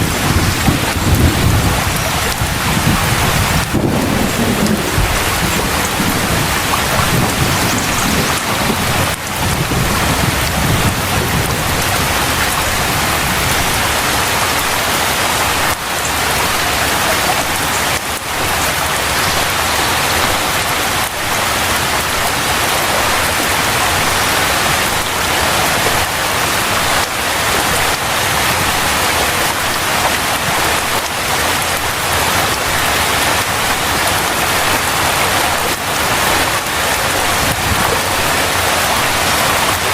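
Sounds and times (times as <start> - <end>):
low thunder rumble: 0.0 - 14.9
heavy rain pouring: 0.0 - 39.9.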